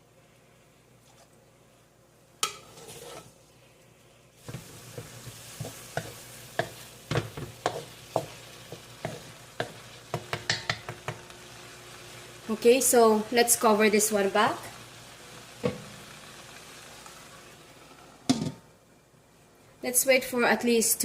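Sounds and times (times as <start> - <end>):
spoon scraping a pan: 2.4 - 3.4, 4.4 - 10.9
meat sizzling in a pan: 4.4 - 18.5.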